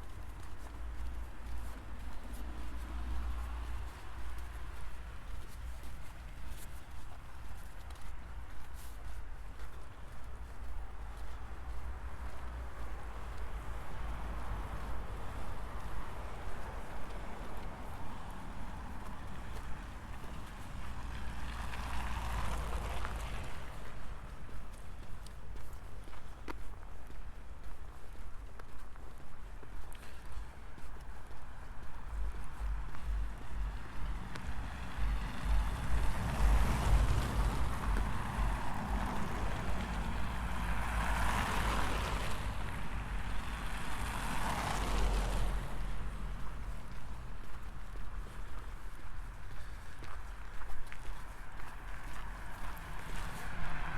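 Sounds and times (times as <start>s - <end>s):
low traffic rumble: 9.3s - 53.9s
vehicle passing: 11.2s - 24.7s, 31.5s - 53.9s
footsteps crunching in snow: 15.7s - 53.9s.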